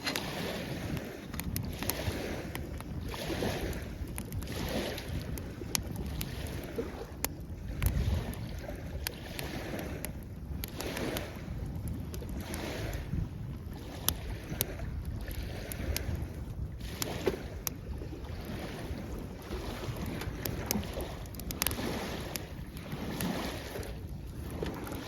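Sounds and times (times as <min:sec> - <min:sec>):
campfire crackling: 0:00.0 - 0:25.0
low wind rumble: 0:00.0 - 0:25.0
waves washing on shore: 0:00.0 - 0:25.0.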